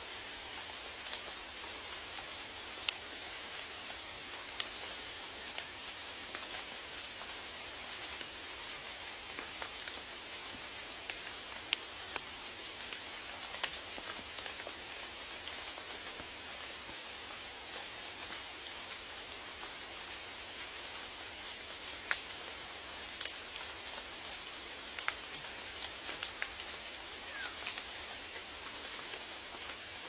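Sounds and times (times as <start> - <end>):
steady rain hiss: 0.0 - 30.0
raindrops ticking: 0.4 - 7.3, 21.4 - 29.8.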